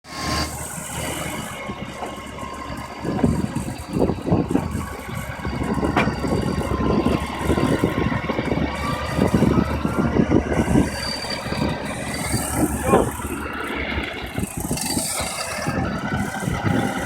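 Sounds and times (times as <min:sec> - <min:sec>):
off-road vehicle engine running: 0:00.0 - 0:17.0.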